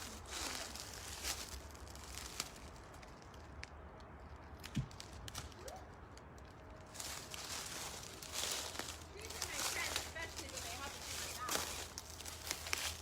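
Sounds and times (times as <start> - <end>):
dry leaves crackling underfoot: 0.0 - 13.0
footsteps on woodland floor: 6.9 - 13.0.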